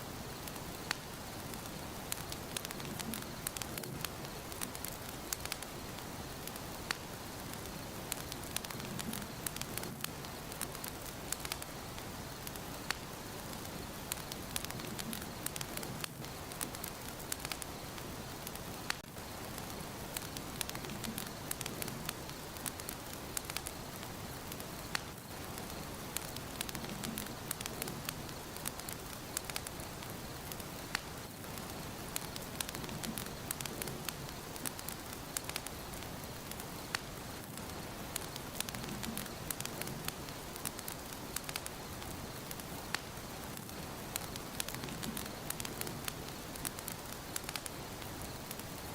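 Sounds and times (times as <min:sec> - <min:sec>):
fire crackling and popping: 0:00.0 - 0:48.9
hiss of fire flames: 0:00.0 - 0:48.9.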